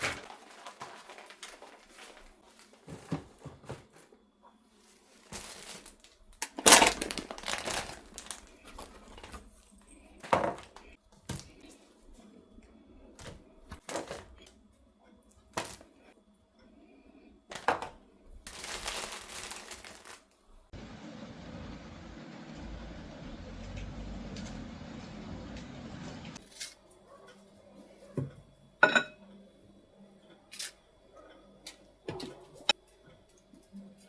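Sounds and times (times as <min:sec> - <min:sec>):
crinkling and rustling: 0:00.0 - 0:12.3, 0:13.2 - 0:14.6, 0:17.5 - 0:21.5.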